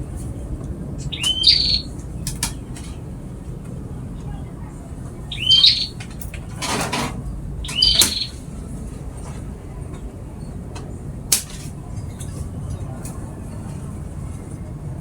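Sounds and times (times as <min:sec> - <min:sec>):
songbird chirping: 0:01.0 - 0:02.3, 0:05.1 - 0:06.0, 0:07.6 - 0:08.5.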